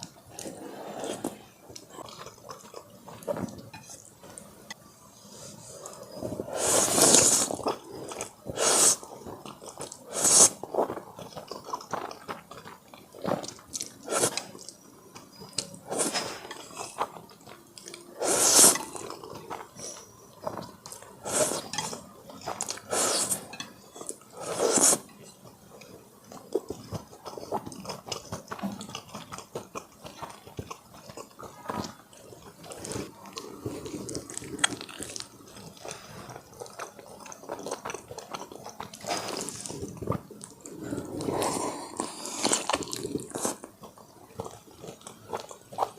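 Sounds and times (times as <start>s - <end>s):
person chewing and crunching: 0.0s - 4.4s, 5.6s - 45.9s.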